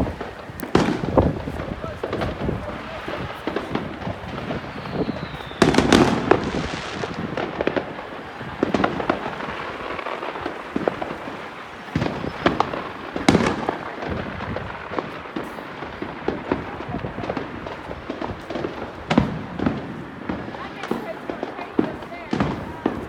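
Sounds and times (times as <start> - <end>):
firecrackers crackling: 0.0 - 23.0
loud firework bangs: 0.0 - 23.0
faint falling whistle: 4.7 - 5.7.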